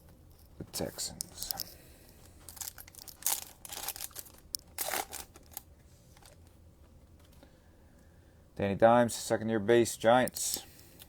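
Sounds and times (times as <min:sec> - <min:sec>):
foil wrappers crinkling: 0:02.2 - 0:06.4.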